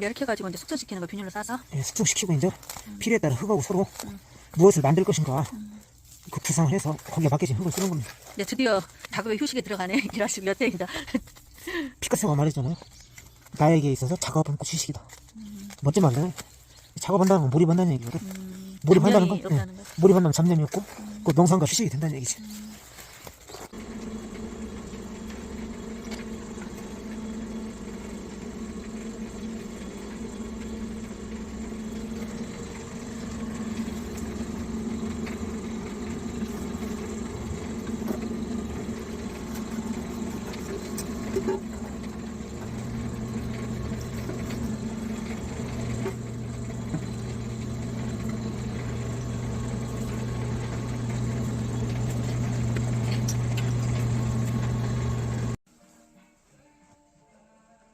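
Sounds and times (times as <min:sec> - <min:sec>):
small electric motor humming: 0:13.0 - 0:55.6
lower hum: 0:15.3 - 0:55.6.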